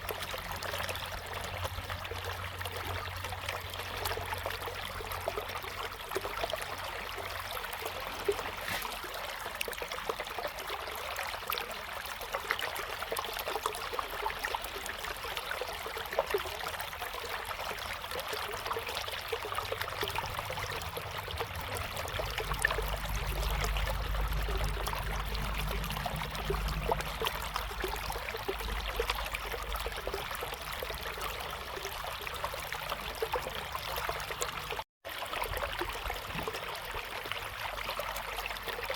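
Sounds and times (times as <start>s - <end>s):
low rumble: 19.4s - 30.3s.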